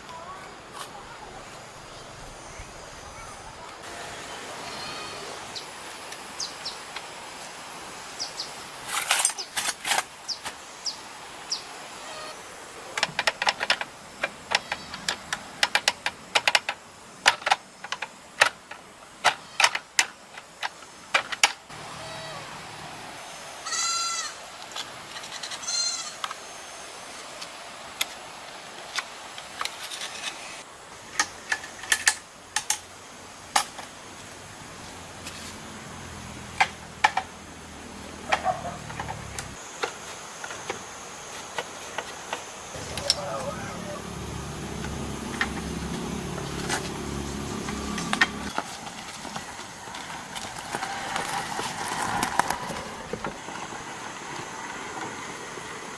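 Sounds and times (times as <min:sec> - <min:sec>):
animal bleats: 0:04.6 - 0:05.4, 0:21.9 - 0:22.5, 0:23.6 - 0:24.4, 0:25.6 - 0:26.2.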